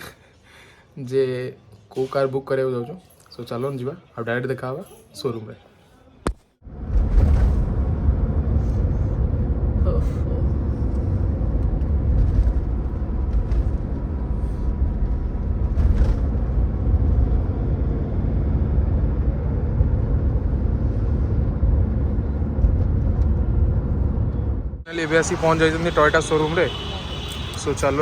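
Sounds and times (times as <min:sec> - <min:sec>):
vehicle road and engine rumble: 0:06.6 - 0:28.0.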